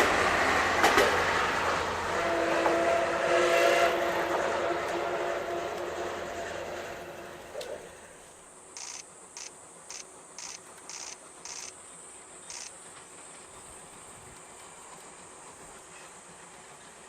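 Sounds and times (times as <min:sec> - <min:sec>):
train: 0:00.0 - 0:17.0
insects buzzing: 0:03.9 - 0:16.1
short high insect chirps: 0:08.8 - 0:12.8.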